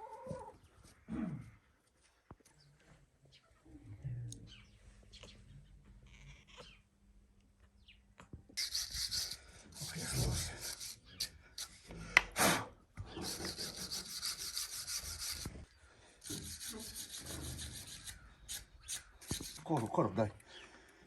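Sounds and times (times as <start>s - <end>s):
rasping scraping strokes: 8.6s - 11.8s, 13.2s - 19.9s.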